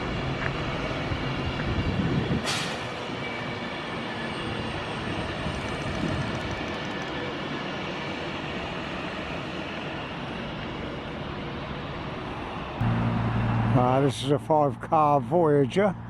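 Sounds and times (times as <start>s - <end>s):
train wheels on rails: 0.0s - 12.8s.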